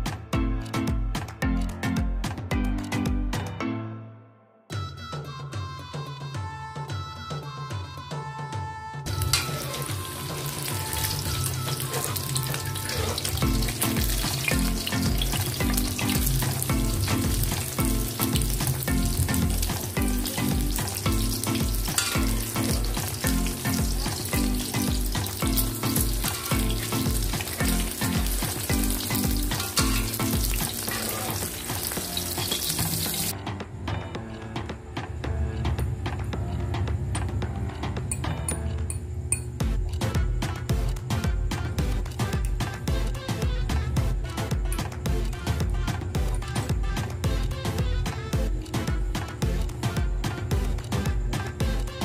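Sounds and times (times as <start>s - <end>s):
background music with bass beat: 0.0s - 3.8s, 9.1s - 52.0s
egg sizzling in hot oil: 9.1s - 33.4s
metal spoon against pan: 21.8s - 23.3s, 28.2s - 33.3s.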